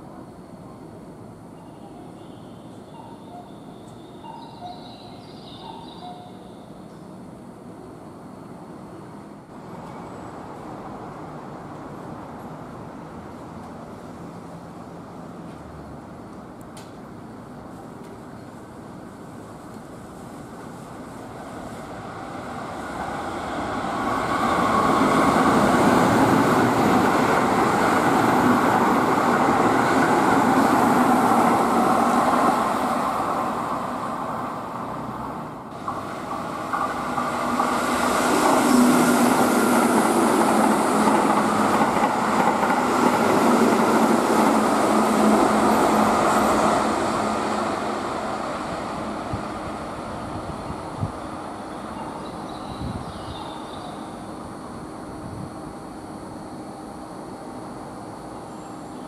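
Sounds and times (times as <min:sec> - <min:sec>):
train running past: 0:00.0 - 0:59.0
electric train running in: 0:20.7 - 0:59.0.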